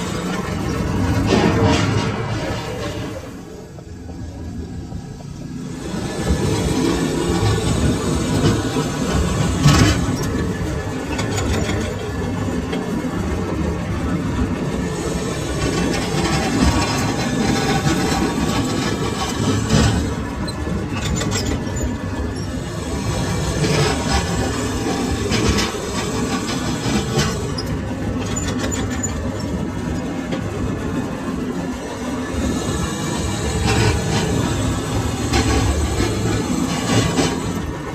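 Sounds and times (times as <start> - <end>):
metal lathe running: 0.0 - 37.9
metallic clatter: 0.3 - 3.4.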